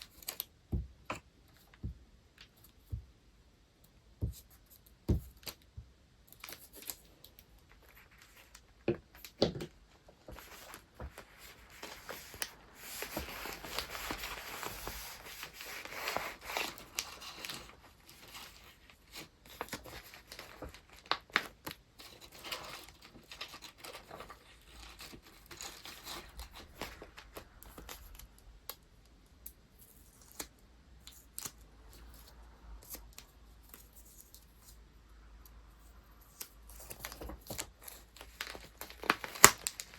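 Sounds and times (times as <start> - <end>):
paper rustling and tearing: 10.2 - 28.2, 36.4 - 39.9.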